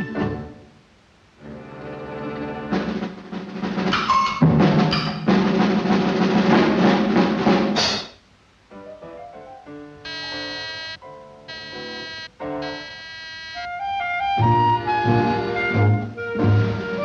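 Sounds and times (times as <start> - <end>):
drum roll and heavy percussion: 2.8 - 8.2.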